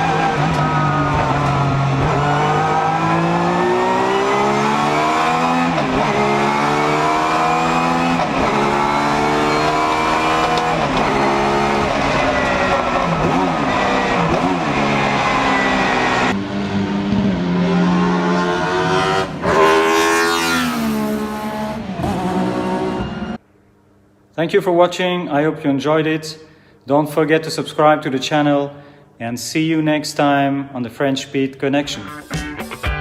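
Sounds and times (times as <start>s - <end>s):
race car engine revving: 0.0s - 23.4s.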